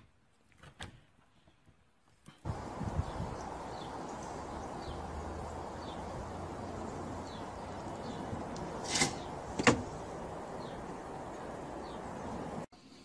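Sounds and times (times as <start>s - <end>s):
small bird chirping: 2.5s - 12.7s.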